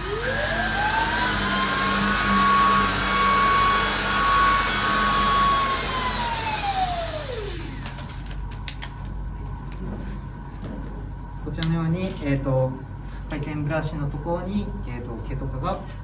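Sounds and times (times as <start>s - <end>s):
vacuum cleaner motor whine: 0.0s - 8.4s.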